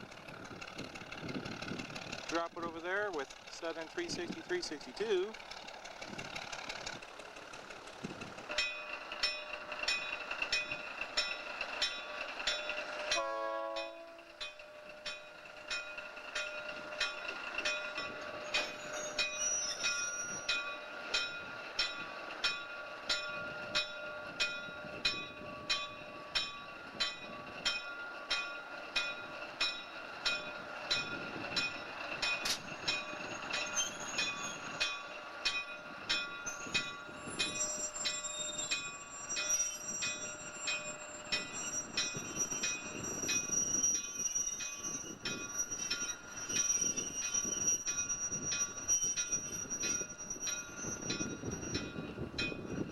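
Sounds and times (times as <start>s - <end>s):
locomotive bell ringing: 2.3s - 5.8s, 8.5s - 52.9s
locomotive horn blast: 13.1s - 14.4s.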